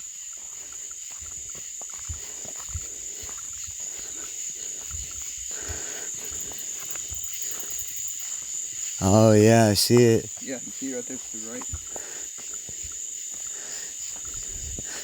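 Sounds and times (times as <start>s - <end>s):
crickets and insects chirping: 0.0s - 15.0s.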